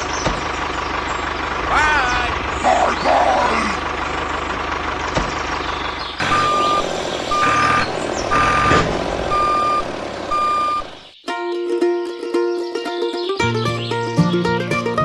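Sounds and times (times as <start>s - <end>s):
vehicle reversing beeper: 6.2s - 11.0s
music: 11.3s - 15.0s
engine running: 11.8s - 15.0s.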